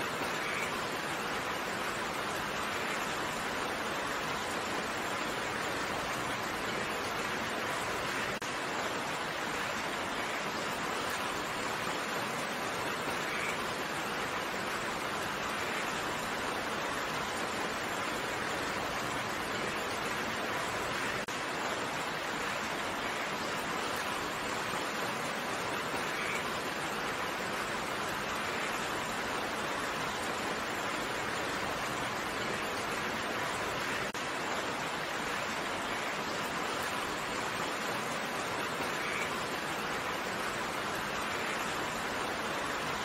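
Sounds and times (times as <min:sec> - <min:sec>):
steady rain: 0:00.0 - 0:43.0.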